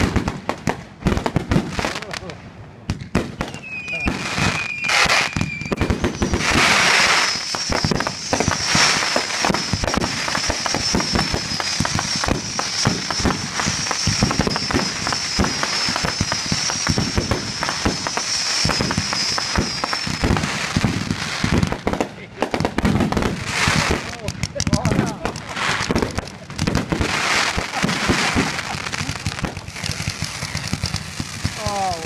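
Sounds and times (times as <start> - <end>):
fireworks crackling and bangs: 0.0 - 32.0
thin high whistle: 3.5 - 8.8.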